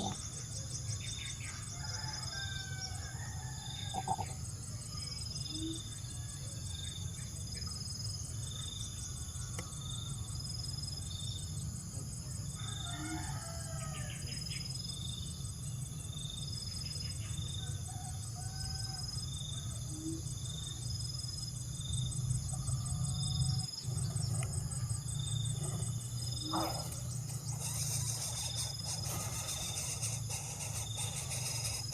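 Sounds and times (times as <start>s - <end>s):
insect trilling: 0.0s - 7.7s, 18.5s - 31.9s
rooster crowing: 1.7s - 4.2s, 12.6s - 14.2s.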